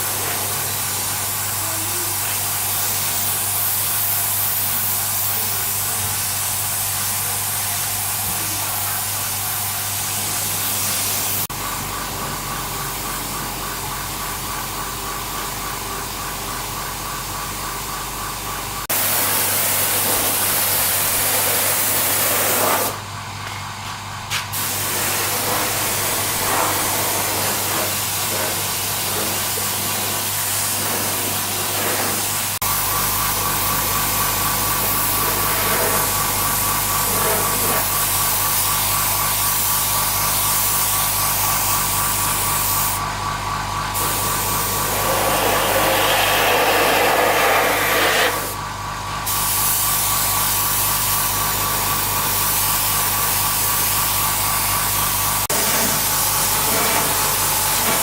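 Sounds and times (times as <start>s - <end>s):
hissing spray: 18.9s - 23.0s, 24.5s - 43.0s, 44.0s - 48.6s, 49.3s - 58.0s.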